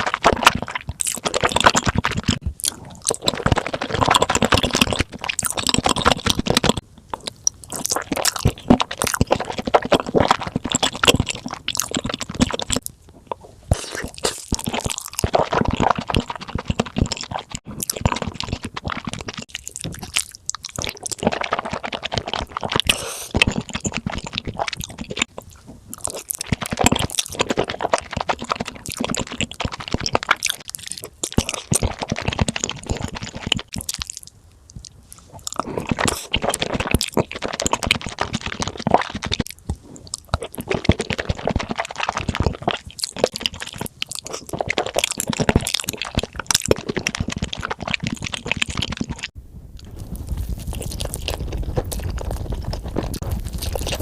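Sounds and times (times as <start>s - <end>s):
wet chewing: 0.0s - 54.0s
crunching pizza bites: 13.7s - 54.0s.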